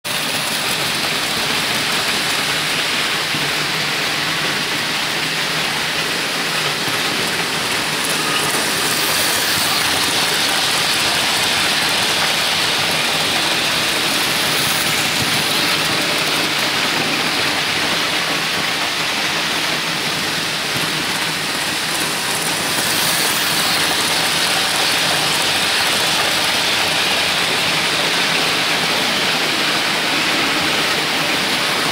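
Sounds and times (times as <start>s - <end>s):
model train whirring on track: 0.0s - 31.9s.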